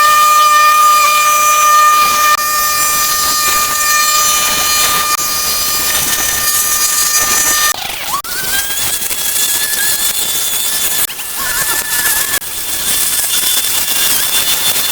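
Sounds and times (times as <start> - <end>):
machine high-pitched whine: 0.0 - 14.9
hiss: 8.3 - 14.9.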